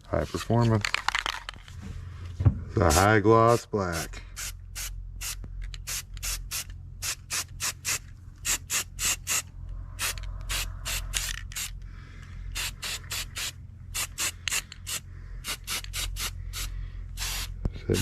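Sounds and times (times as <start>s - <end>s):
spray can rattling: 0.8s - 1.6s, 4.4s - 9.4s, 10.0s - 11.8s, 12.5s - 17.6s.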